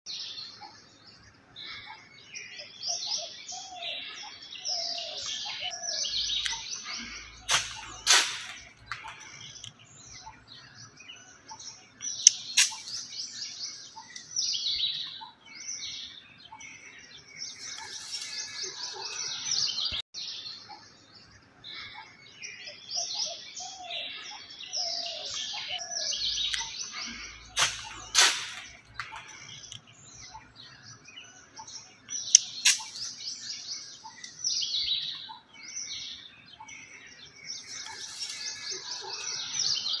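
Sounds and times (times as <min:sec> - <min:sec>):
birds singing: 0:00.1 - 0:40.0
sharp clicks: 0:12.0 - 0:13.0, 0:32.1 - 0:33.0.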